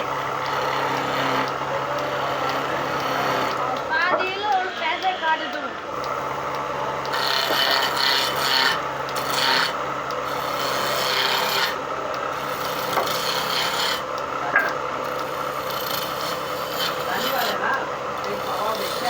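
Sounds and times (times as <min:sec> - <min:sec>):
tool rasping and scraping wood: 0:00.0 - 0:05.4, 0:06.4 - 0:19.0.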